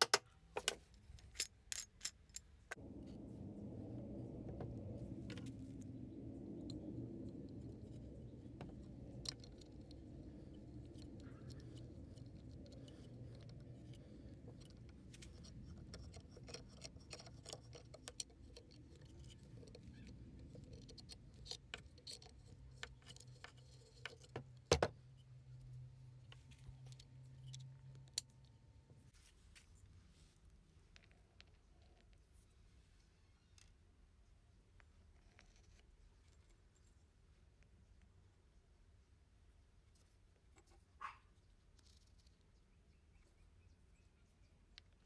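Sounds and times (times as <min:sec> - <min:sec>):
small metal parts clicking: 0:00.0 - 0:02.7, 0:09.0 - 0:24.6
faint low hum: 0:00.0 - 0:45.0.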